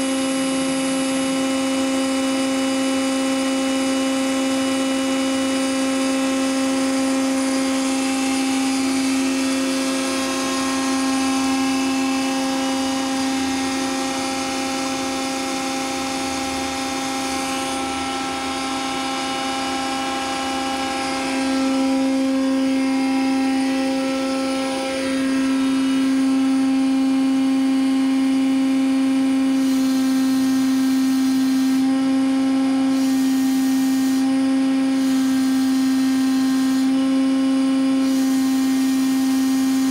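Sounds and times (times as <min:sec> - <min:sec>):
machine mechanical whine: 0:04.4 - 0:37.0.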